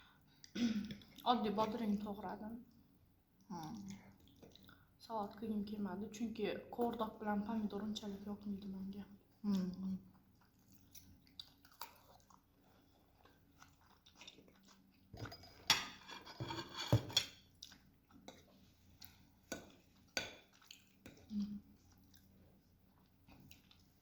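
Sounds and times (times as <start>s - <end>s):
person chewing: 3.6s - 4.9s, 9.4s - 15.1s, 17.3s - 24.0s.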